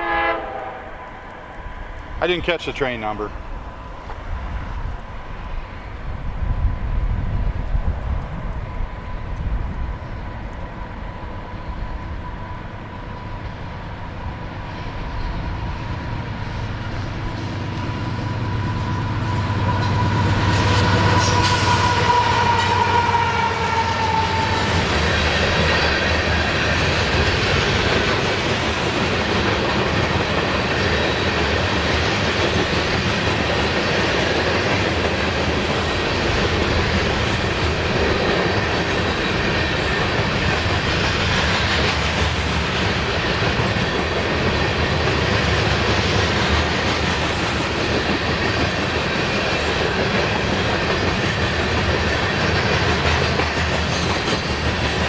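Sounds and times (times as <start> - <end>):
locomotive engine hum: 0.0 - 55.0
train wheels rumbling on rail: 0.0 - 55.0.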